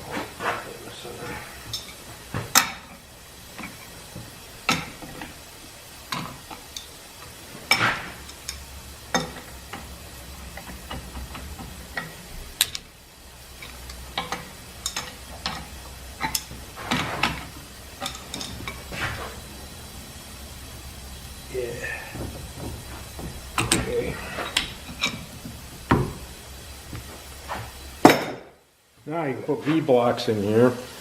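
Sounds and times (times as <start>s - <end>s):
steady low hum: 0.0s - 29.7s
metal tools clicking and clunking: 1.3s - 19.5s, 21.8s - 28.4s.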